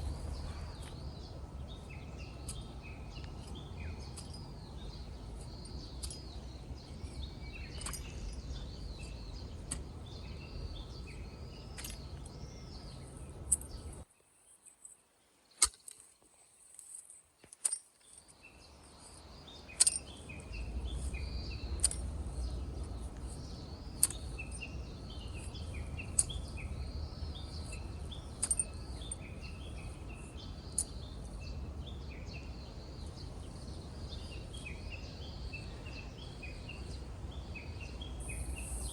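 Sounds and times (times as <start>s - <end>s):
low background noise: 0.0s - 38.9s
small birds chirping: 0.0s - 38.9s
sharp clicks: 7.1s - 9.9s, 11.7s - 12.4s, 15.6s - 16.1s, 19.7s - 29.7s.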